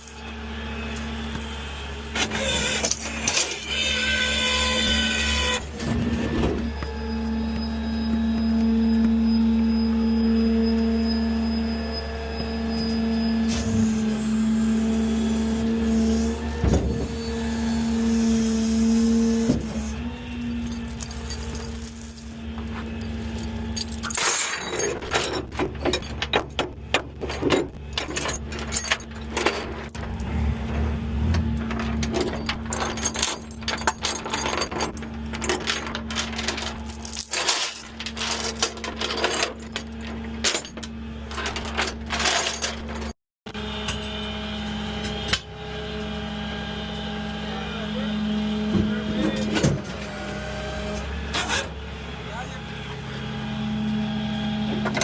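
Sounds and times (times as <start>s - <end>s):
metallic chains clinking: 0.0s - 2.8s, 20.2s - 26.5s, 31.5s - 43.1s.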